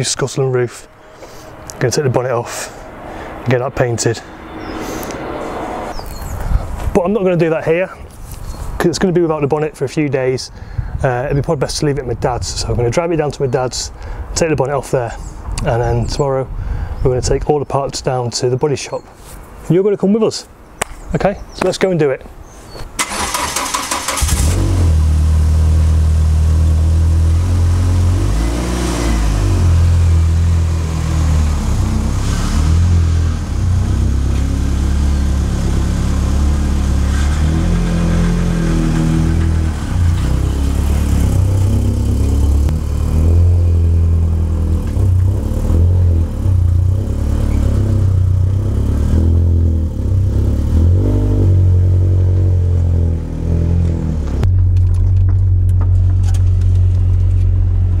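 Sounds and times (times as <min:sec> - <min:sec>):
car engine starting and running: 0:00.2 - 0:07.8, 0:23.0 - 0:58.0.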